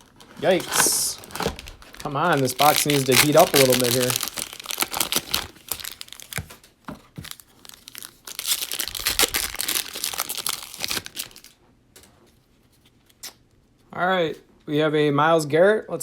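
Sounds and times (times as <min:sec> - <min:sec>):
cellophane wrapper crinkling: 0:00.0 - 0:11.6.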